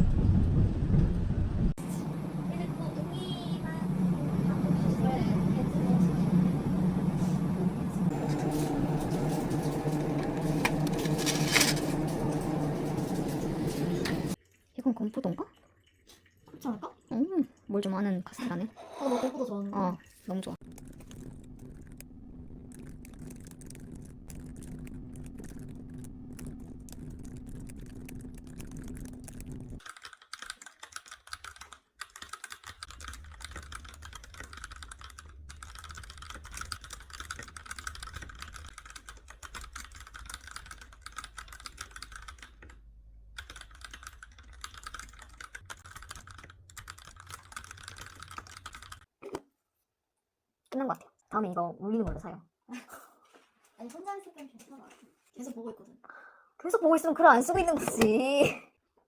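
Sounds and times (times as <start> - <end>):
low steady hum: 0.0 - 14.4, 20.6 - 29.8
keyboard typing: 22.7 - 42.8, 43.4 - 49.1.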